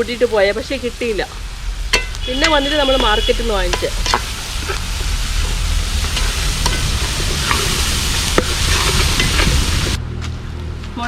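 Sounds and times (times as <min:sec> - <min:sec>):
food sizzling in oil: 0:00.0 - 0:10.0
spoon stirring: 0:01.9 - 0:09.8.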